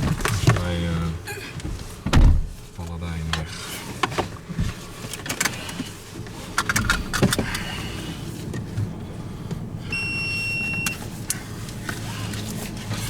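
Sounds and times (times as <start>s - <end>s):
engine hum: 0.0s - 13.0s
high electronic beep: 10.0s - 11.0s.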